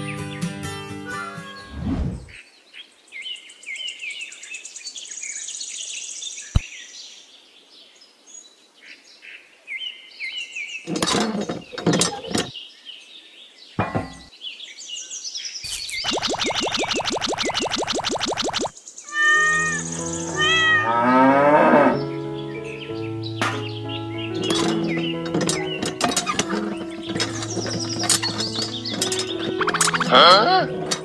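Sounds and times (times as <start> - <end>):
birds chirping: 11.6 - 20.8, 21.8 - 30.7.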